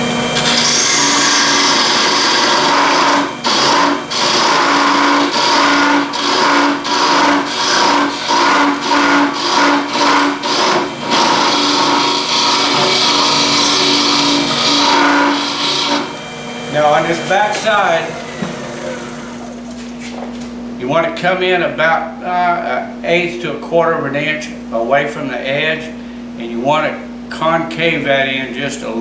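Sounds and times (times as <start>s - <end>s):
lathe humming: 0.0s - 20.3s
turning tool scraping wood: 0.4s - 20.3s.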